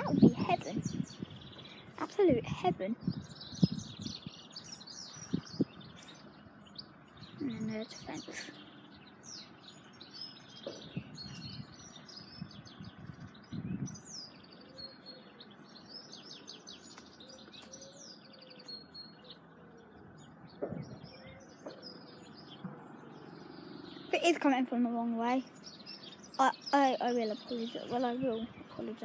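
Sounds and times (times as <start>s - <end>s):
outdoor background noise: 0.0s - 29.0s
small birds chirping: 0.0s - 29.0s
soft low thumps: 20.5s - 21.9s.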